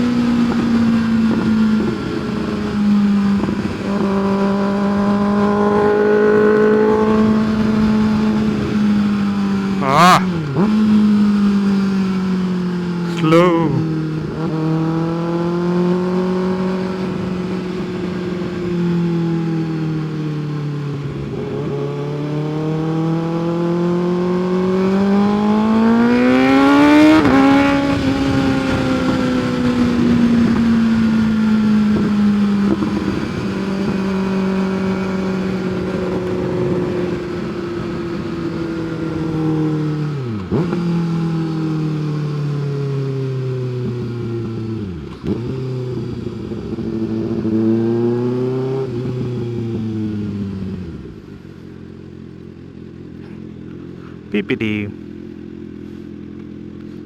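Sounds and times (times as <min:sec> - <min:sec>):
motorcycle engine revving: 0:00.2 - 0:12.9.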